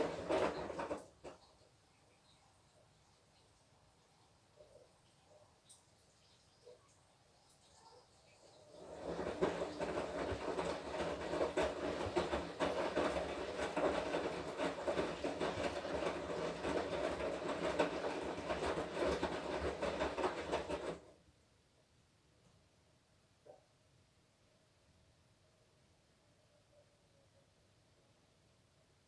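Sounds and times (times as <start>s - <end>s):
washing machine running: 0.0s - 1.4s, 8.7s - 21.1s
wet laundry tumbling: 0.0s - 1.5s, 8.7s - 21.1s.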